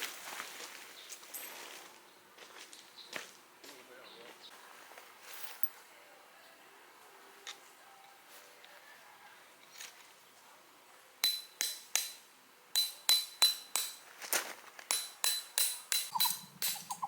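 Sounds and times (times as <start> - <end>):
sharp metallic clinks: 14.9 - 17.0.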